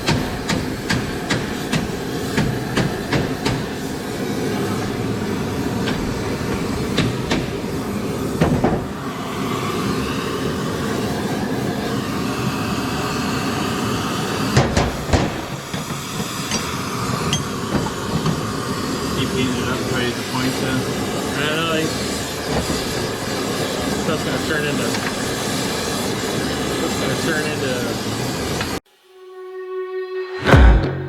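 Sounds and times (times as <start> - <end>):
hammer blows: 28.9 - 31.0.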